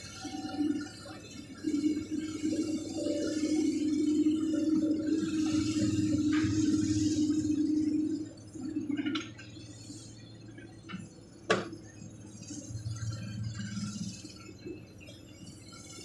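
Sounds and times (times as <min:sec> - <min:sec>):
excavator diesel engine running: 0:00.0 - 0:10.6.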